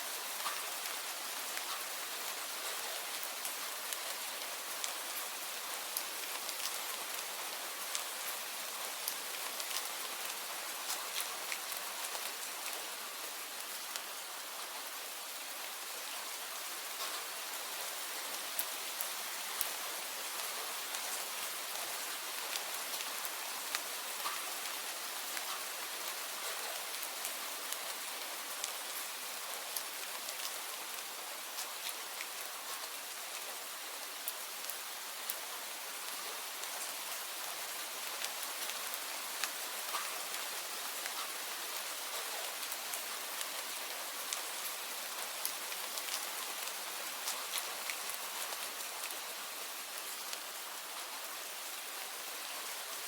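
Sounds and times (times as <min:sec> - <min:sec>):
steady rain hiss: 0:00.0 - 0:53.0
raindrop ticks: 0:00.4 - 0:01.0, 0:23.7 - 0:24.5, 0:39.4 - 0:40.4.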